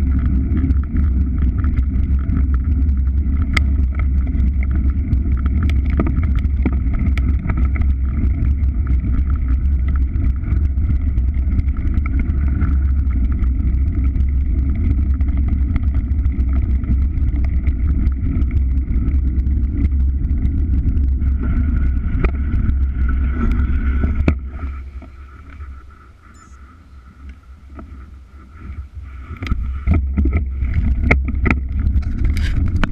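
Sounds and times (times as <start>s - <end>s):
moving vehicle rumble: 0.0s - 32.9s.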